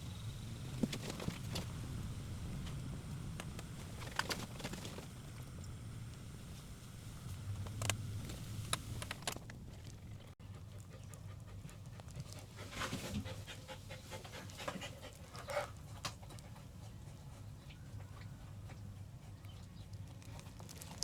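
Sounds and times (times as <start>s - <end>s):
dog panting: 10.4s - 19.9s.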